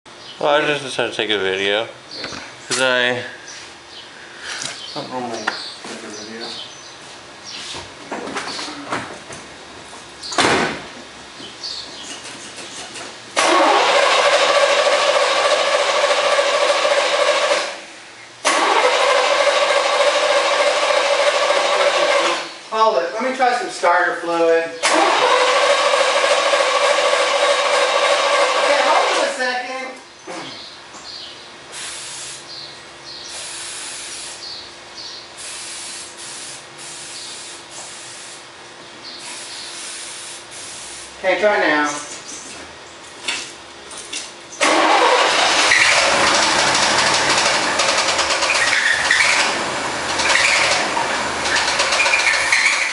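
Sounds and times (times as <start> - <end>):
starter motor cranking engine: 13.4 - 17.8, 18.4 - 22.5, 24.8 - 29.3, 44.6 - 52.9
aerosol spray hissing: 35.4 - 38.4.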